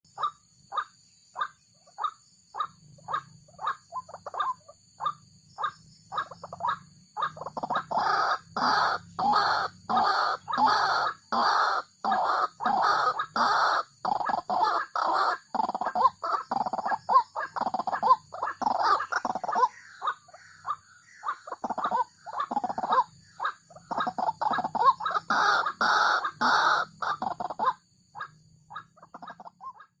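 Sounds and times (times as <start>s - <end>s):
waterhen calling harsh notes: 7.3s - 13.9s, 21.2s - 29.8s.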